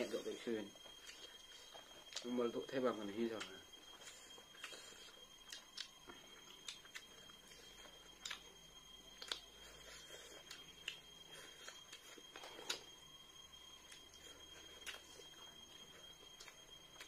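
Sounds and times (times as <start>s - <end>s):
faint high-pitched whine: 0.0s - 17.0s
mouth clicks and smacks chewing: 3.4s - 12.9s.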